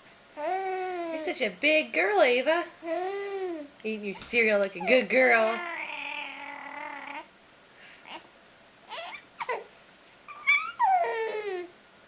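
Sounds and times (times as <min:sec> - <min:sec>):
baby whining and squealing: 0:00.4 - 0:01.3, 0:02.8 - 0:03.7, 0:04.8 - 0:07.3, 0:08.9 - 0:09.7, 0:10.3 - 0:11.8.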